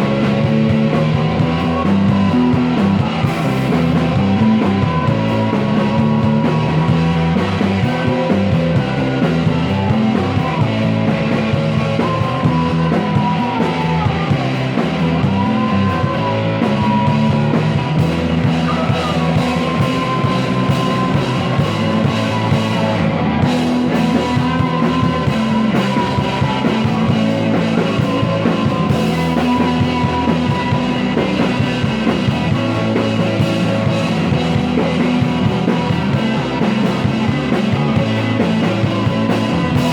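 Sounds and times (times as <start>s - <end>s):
bending lead guitar line: 0.0s - 39.9s
rock band playing: 0.0s - 39.9s.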